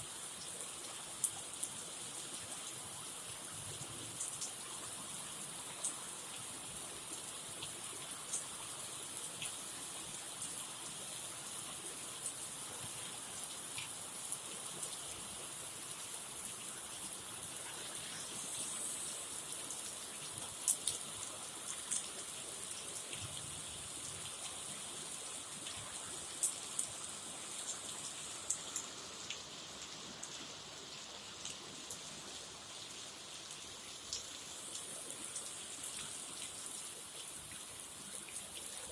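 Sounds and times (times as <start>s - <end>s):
heavy rain hissing: 17.5s - 21.2s, 34.4s - 37.0s.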